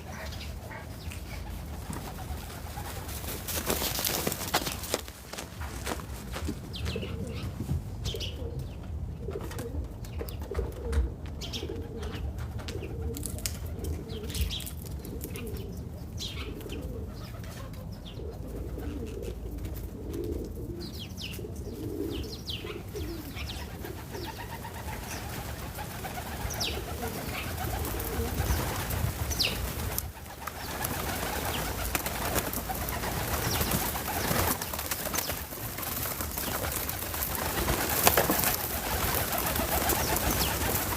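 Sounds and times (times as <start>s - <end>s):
small birds chirping: 0.0s - 8.9s, 20.8s - 40.9s
doves cooing: 0.0s - 40.9s.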